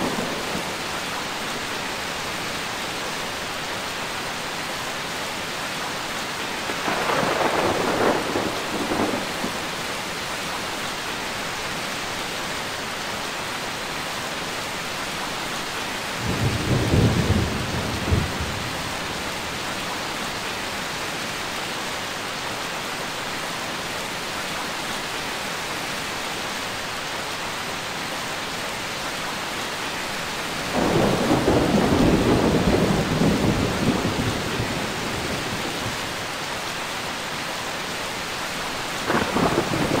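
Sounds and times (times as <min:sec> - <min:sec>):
heavy rain: 0:00.0 - 0:40.0
thunder rolling: 0:30.7 - 0:35.8, 0:39.1 - 0:40.0.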